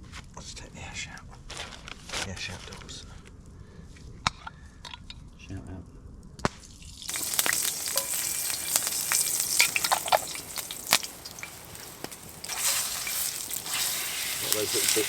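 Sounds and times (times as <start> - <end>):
food sizzling in hot oil: 6.8 - 15.0
oil popping and crackling: 6.8 - 15.0.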